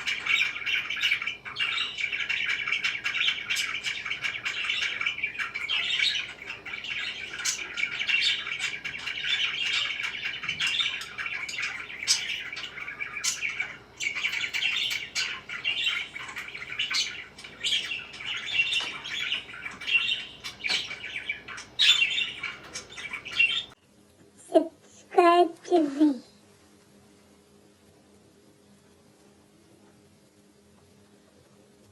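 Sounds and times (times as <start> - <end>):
parakeets chirping and chattering: 0.0 - 23.8.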